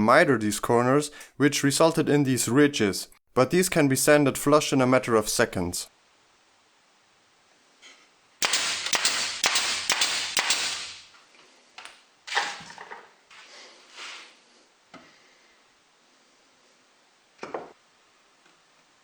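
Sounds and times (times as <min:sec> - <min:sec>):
sharp clicks: 0:08.4 - 0:10.9.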